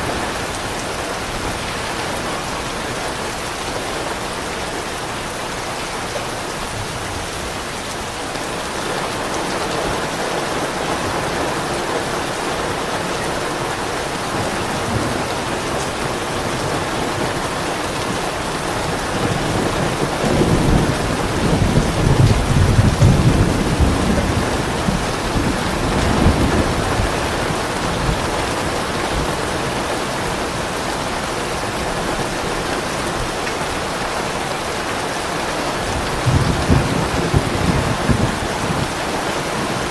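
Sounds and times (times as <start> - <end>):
steady rain hissing: 0.0 - 39.9
distant thunder rumbling: 8.9 - 32.3, 35.8 - 39.9.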